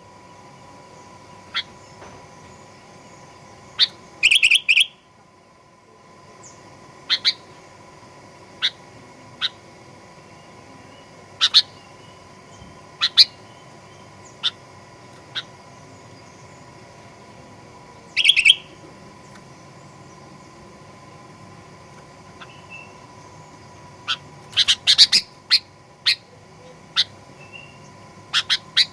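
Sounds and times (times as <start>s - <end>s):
faint steady hum: 0.0s - 28.9s
bird giving sharp call notes: 3.8s - 5.0s, 18.1s - 18.8s.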